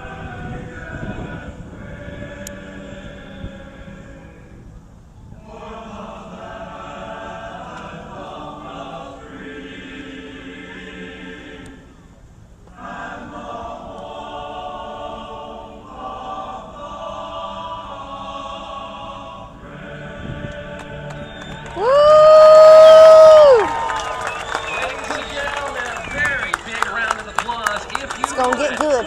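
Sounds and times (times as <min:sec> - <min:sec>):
choir singing: 0:00.0 - 0:04.6, 0:05.3 - 0:12.0, 0:12.7 - 0:22.0.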